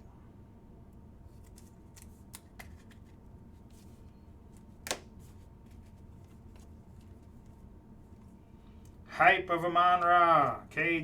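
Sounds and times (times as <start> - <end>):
trading card snap: 4.8 - 5.1.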